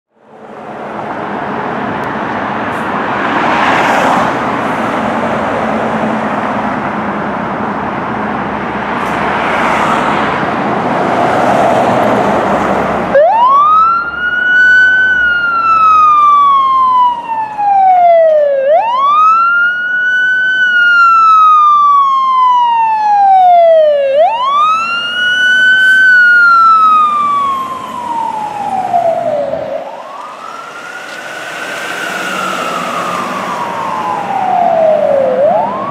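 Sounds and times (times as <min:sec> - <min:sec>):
engine and road noise: 0:00.1 - 0:35.9
siren wailing: 0:13.1 - 0:35.9.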